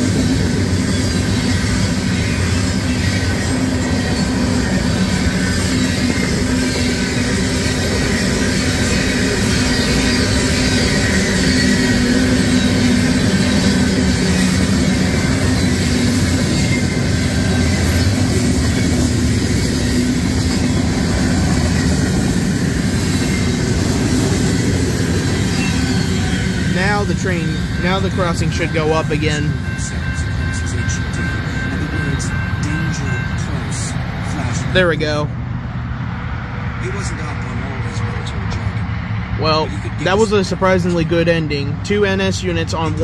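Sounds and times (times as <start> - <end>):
rumble of steel wheels on rails: 0.0 - 43.0.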